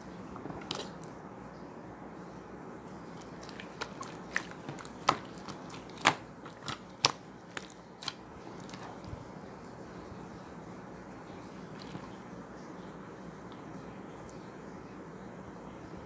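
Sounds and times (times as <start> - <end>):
sharp clicks and crunches: 3.2 - 9.1.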